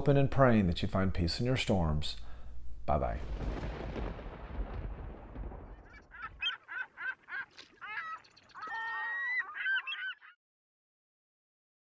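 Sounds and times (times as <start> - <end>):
storm-like rumbling: 3.1 - 6.7
bird calls: 5.6 - 10.4.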